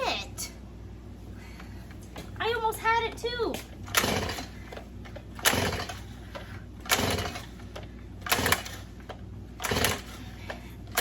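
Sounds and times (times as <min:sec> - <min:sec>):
chainsaw starter rope rasping: 0:03.8 - 0:11.0.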